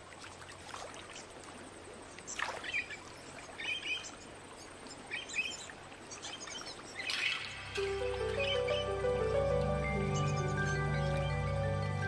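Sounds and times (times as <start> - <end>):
faint steady hiss: 0.0 - 12.0
birds chirping: 2.6 - 12.0.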